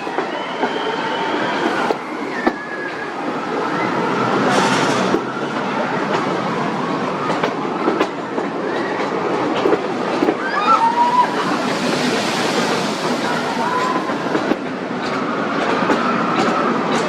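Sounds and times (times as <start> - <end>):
train wheels rumbling and clattering: 0.0 - 17.0
wheels clicking on rail joints: 4.4 - 17.0.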